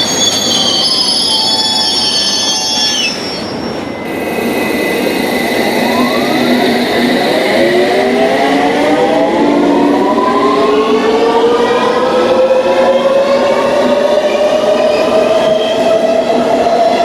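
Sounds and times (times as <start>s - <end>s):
train wheel squeal: 0.0s - 8.0s, 12.6s - 17.0s
traction motors whining: 0.0s - 11.6s.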